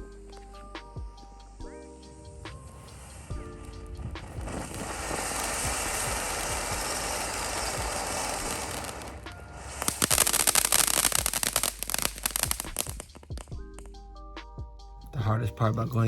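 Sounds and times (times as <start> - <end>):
firework hissing: 0.0 - 13.8
firework crackling pops: 2.3 - 14.0.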